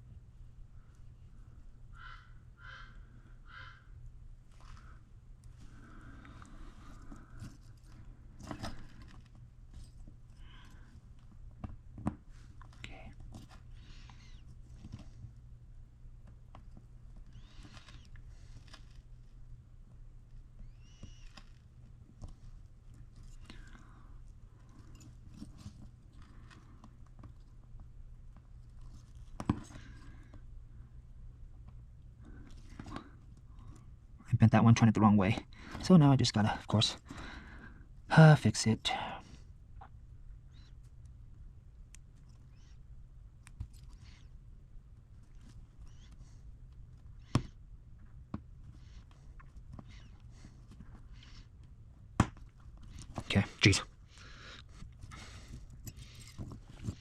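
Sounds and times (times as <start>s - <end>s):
low steady hum: 0.0s - 57.0s
clicks and rustles of handled parts: 4.5s - 15.5s, 16.2s - 19.4s, 20.8s - 30.4s, 41.9s - 44.4s, 45.0s - 57.0s
small parts clicking and rattling: 16.2s - 19.1s, 20.8s - 27.6s, 45.2s - 47.6s, 54.1s - 57.0s.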